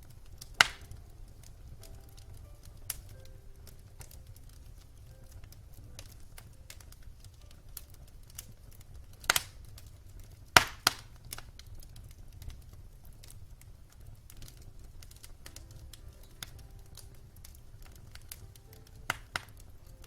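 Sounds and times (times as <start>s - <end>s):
wood fire crackling: 0.0s - 20.0s
loud sharp pops: 0.6s - 1.0s, 10.6s - 11.5s, 19.1s - 19.6s.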